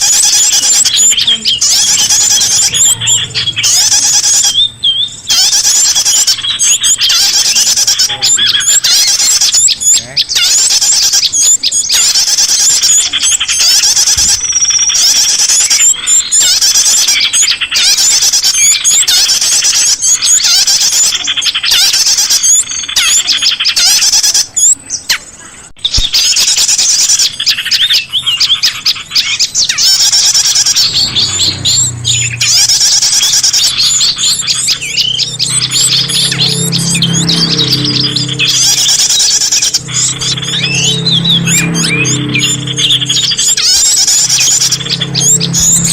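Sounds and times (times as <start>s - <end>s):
songbirds chirping and trilling: 0.0s - 45.9s
low steady tones: 30.3s - 45.9s.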